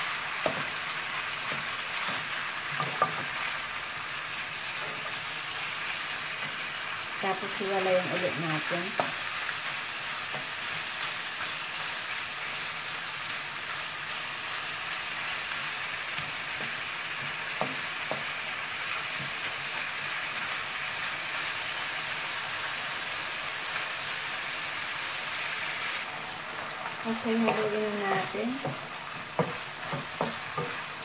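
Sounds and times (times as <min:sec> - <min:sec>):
food sizzling in a frying pan: 0:00.0 - 0:31.0
wooden spatula stirring: 0:27.2 - 0:31.0.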